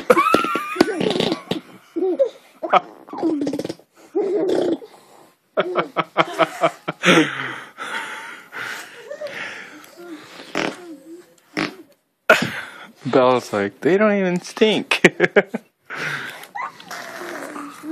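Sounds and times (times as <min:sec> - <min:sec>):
people laughing: 0:05.6 - 0:07.5
baby blowing raspberries: 0:10.0 - 0:11.9
baby squealing grunts: 0:16.5 - 0:17.9.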